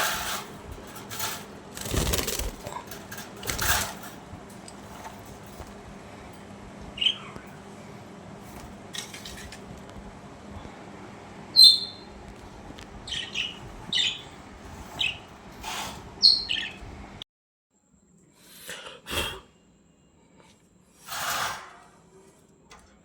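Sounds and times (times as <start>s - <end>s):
budgerigars chirping: 13.0s - 14.3s, 16.2s - 16.8s.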